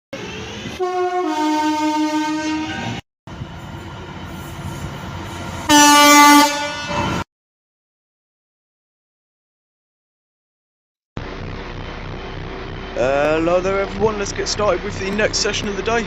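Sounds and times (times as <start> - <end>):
passing train: 0.1 - 7.2, 11.2 - 16.0
train horn blasts: 0.7 - 3.0, 5.7 - 7.2.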